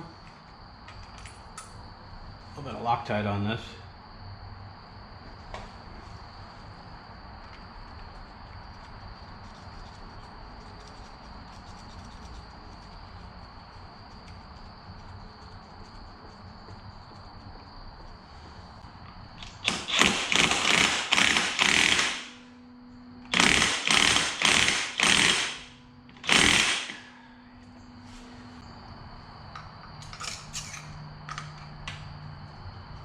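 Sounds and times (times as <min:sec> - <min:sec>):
impact wrench hammering: 0:19.6 - 0:22.4, 0:23.3 - 0:27.0.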